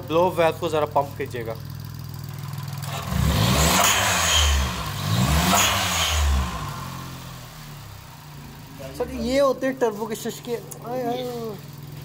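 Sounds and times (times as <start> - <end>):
car engine revving: 2.1 - 9.3.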